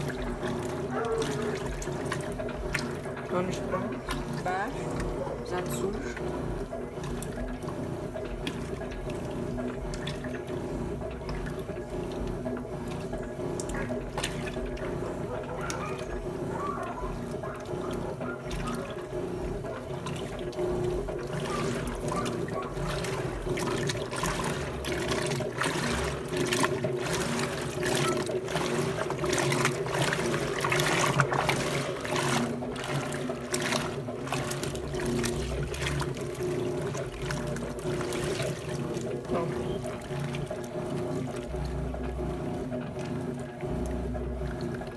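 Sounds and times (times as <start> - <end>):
washing machine low hum: 0.0 - 44.9
water splashing in washing machine: 0.0 - 44.9.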